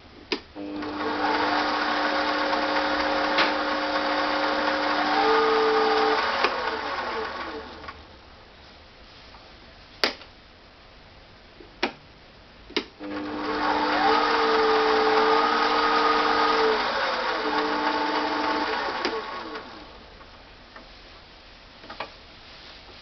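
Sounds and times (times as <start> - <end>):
lathe motor whining: 0.6 - 8.0, 13.0 - 20.0.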